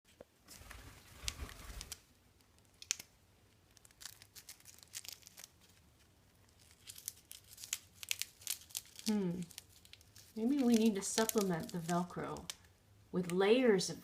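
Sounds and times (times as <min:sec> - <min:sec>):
velcro clicks: 0:01.2 - 0:03.1
velcro tearing rasps: 0:03.8 - 0:05.7, 0:06.6 - 0:11.9.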